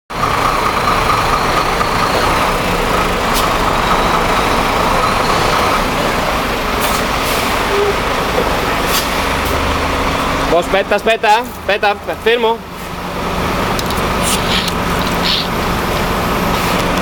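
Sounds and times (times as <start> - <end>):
diesel truck engine droning: 0.1 - 17.0
short sharp hisses: 13.9 - 15.5.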